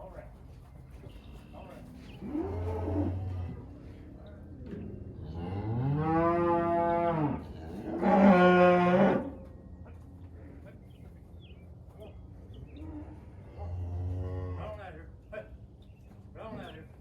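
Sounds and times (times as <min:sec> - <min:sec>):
cattle mooing: 0:05.2 - 0:09.4.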